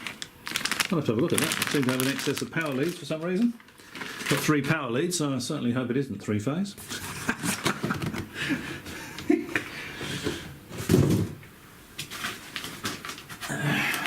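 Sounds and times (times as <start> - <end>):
packaging rustling: 0.0 - 4.8, 11.9 - 14.0.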